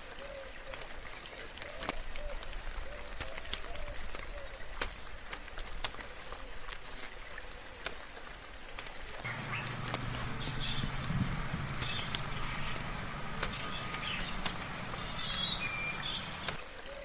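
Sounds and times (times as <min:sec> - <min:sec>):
soft rain: 0:00.0 - 0:17.0
raindrops ticking: 0:07.8 - 0:16.7
low hum: 0:09.3 - 0:16.6
short bird calls: 0:09.3 - 0:16.6.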